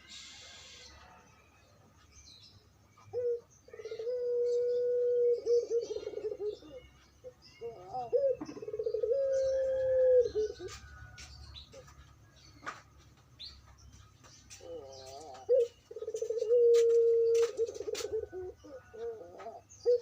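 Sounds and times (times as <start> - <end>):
faint chirps: 0.0 - 12.9
dove cooing: 3.0 - 10.8, 14.5 - 20.0.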